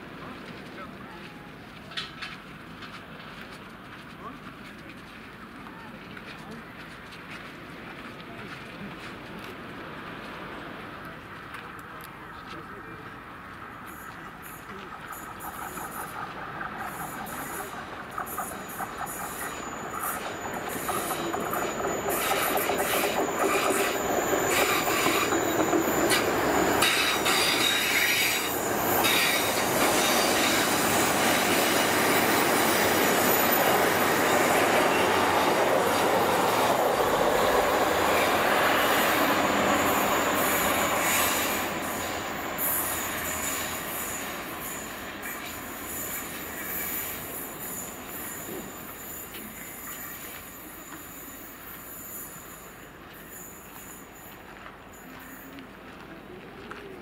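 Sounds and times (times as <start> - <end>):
train wheels on rails: 0.0 - 57.0
thin high steady tone: 13.9 - 35.9.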